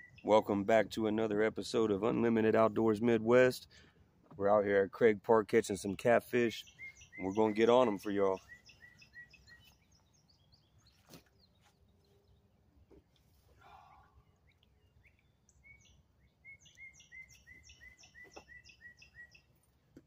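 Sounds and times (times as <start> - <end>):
faint bird chirps: 6.6 - 12.5, 13.6 - 19.6.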